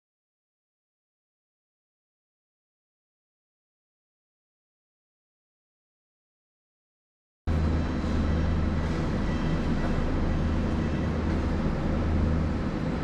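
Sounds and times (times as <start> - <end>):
electric train rumbling: 7.5 - 13.0.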